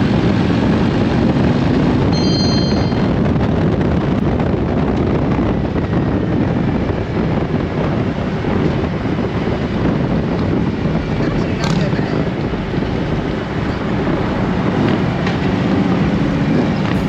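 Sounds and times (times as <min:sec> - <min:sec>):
motorcycle engine rumble: 0:00.0 - 0:17.0
wind rush on microphone: 0:00.0 - 0:17.0
brief high tone: 0:02.1 - 0:03.2.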